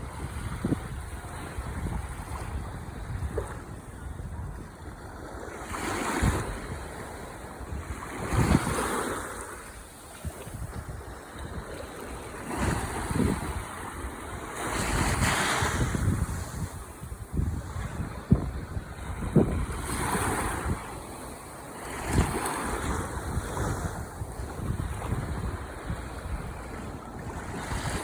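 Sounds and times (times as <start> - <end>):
wind rumbling on microphone: 0.0 - 28.0
ocean waves breaking: 4.9 - 28.0.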